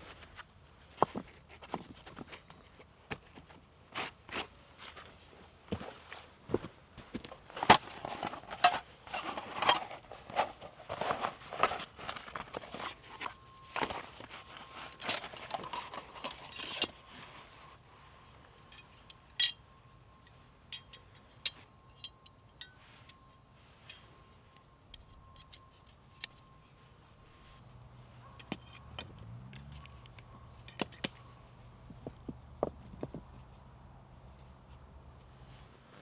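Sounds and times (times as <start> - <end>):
rustling and scraping: 0.0 - 19.2.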